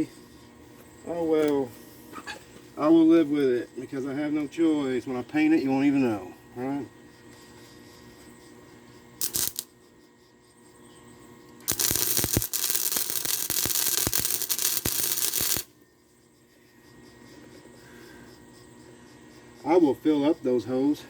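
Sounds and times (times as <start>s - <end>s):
arc welding crackle: 9.2s - 9.8s, 11.6s - 15.8s.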